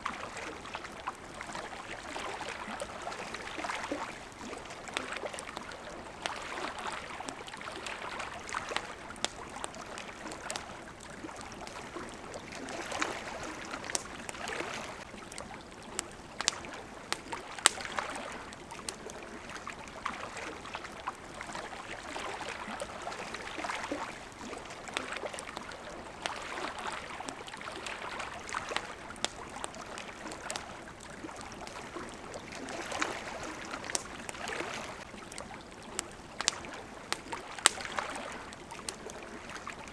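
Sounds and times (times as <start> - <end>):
campfire crackling and popping: 0.0 - 39.9
small waves lapping: 0.0 - 39.9.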